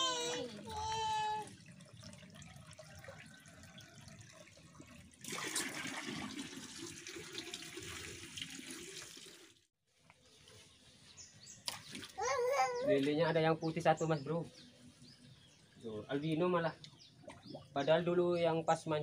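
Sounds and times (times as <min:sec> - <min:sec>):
water running and splashing: 0:00.0 - 0:09.7.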